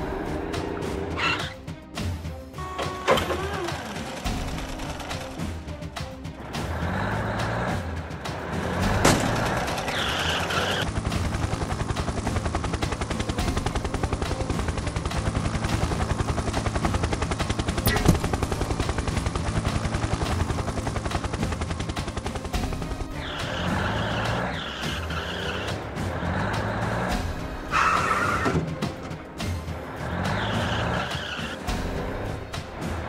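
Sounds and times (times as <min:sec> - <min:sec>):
cartoon helicopter rotor chopping: 0:02.8 - 0:05.4, 0:09.0 - 0:25.7.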